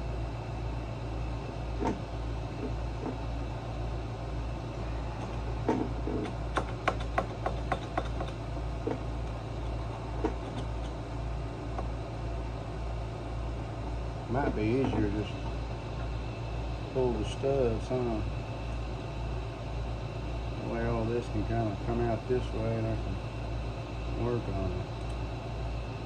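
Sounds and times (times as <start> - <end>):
steady low hum: 0.0 - 26.0
hand tools clicking and knocking: 6.1 - 8.4.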